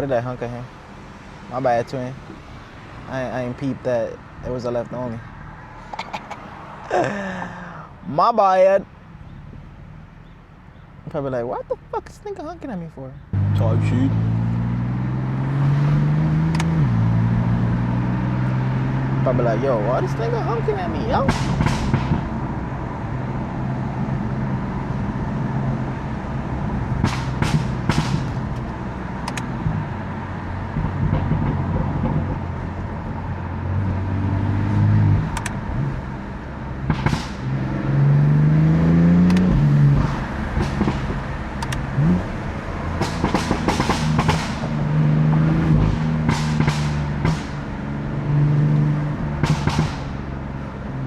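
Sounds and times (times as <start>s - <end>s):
exhaust pops and crackles: 5.8s - 7.1s, 18.4s - 23.0s, 25.5s - 33.9s, 35.1s - 37.8s, 39.1s - 51.0s
car engine revving: 13.2s - 51.0s.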